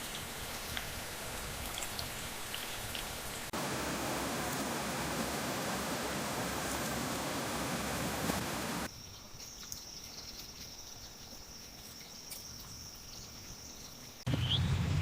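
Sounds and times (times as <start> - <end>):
rushing noise: 3.5 - 8.9.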